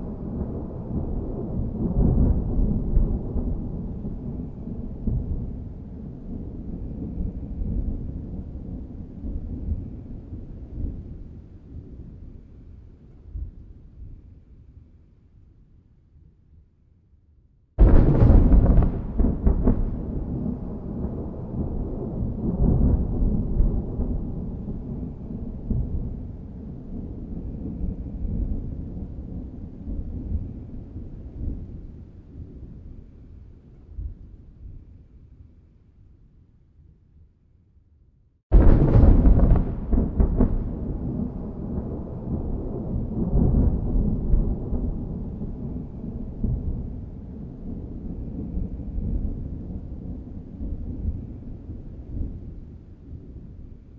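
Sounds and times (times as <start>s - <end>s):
thunder crackles: 0.0s - 11.1s, 17.8s - 32.9s, 38.5s - 53.6s
low rolling thunder rumble: 0.0s - 14.9s, 17.8s - 35.6s, 38.5s - 53.9s.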